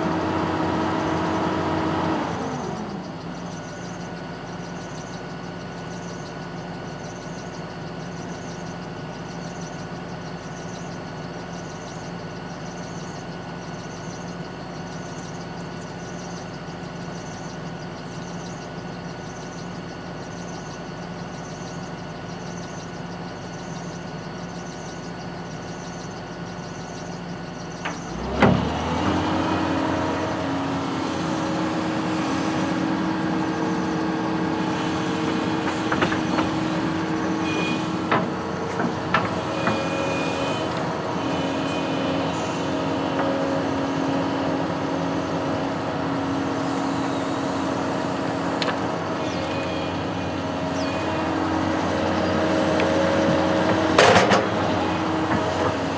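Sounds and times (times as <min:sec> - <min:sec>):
construction machine engine: 0:00.0 - 0:55.9
short clanks: 0:51.0 - 0:55.8.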